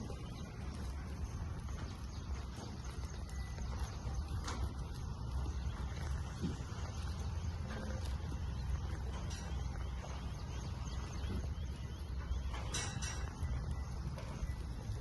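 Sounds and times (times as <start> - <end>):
faint chirps: 0.0 - 15.0
low rumble: 0.0 - 15.0.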